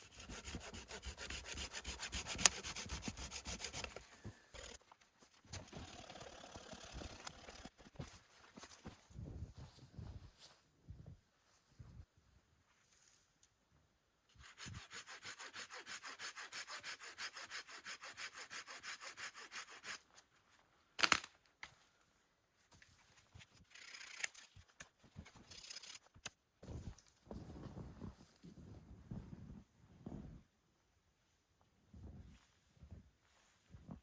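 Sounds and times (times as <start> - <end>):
hand saw cutting wood: 0.0 - 4.8, 5.5 - 7.9, 14.4 - 20.0, 23.7 - 24.5, 25.4 - 26.1.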